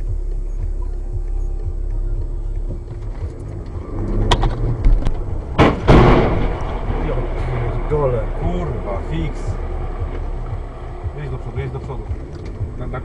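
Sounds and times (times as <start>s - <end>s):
car driving rumble: 0.0s - 13.0s
loud sudden bang: 4.3s - 8.8s.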